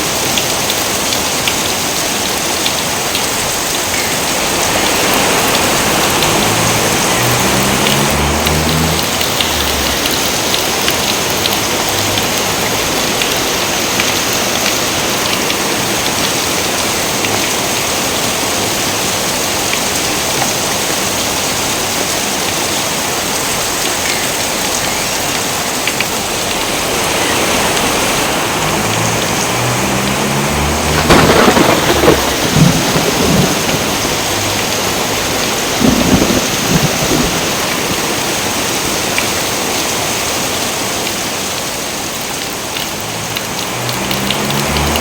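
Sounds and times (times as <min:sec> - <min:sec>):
heavy rain: 0:00.0 - 0:45.0
low thunder rumble: 0:28.6 - 0:38.2.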